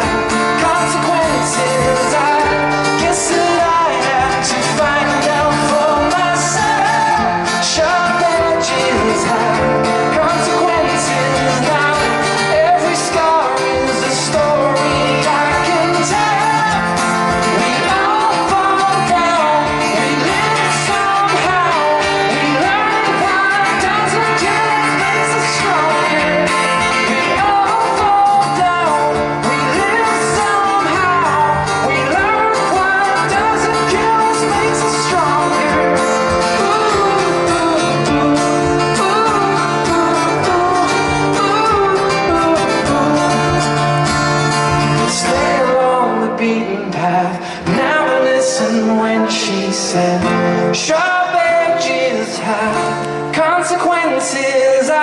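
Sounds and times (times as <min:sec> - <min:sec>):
live band through pa: 0:00.0 - 0:55.0
person singing: 0:00.0 - 0:55.0.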